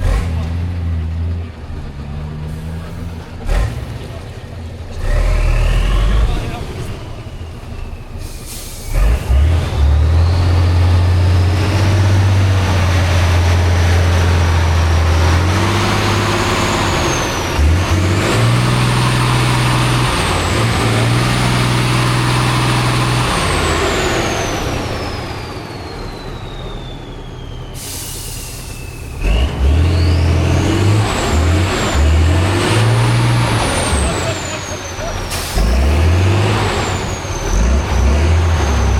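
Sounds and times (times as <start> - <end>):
diesel truck engine under load: 0.0 - 38.9
high whistle: 25.4 - 30.2.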